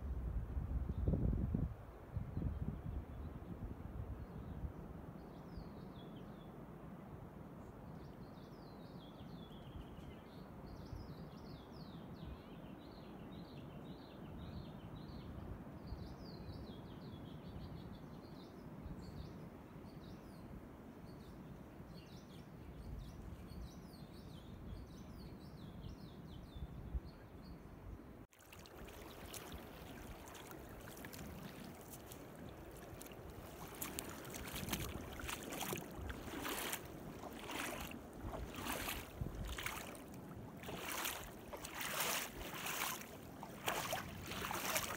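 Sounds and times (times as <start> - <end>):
calm sea water: 28.2 - 44.9
feet wading through water: 28.3 - 44.9
birds chirping: 28.6 - 44.9.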